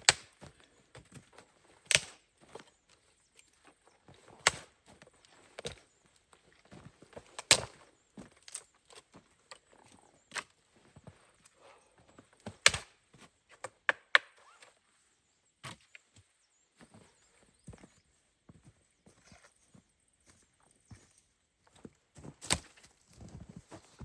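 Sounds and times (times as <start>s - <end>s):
sharp knocks and cracks: 0.0s - 0.5s, 1.9s - 2.2s, 4.4s - 4.7s, 7.3s - 7.9s, 12.4s - 14.4s.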